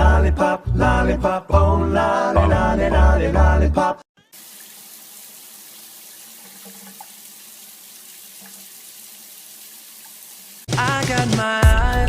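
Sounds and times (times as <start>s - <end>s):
water running from a tap: 4.3s - 10.7s.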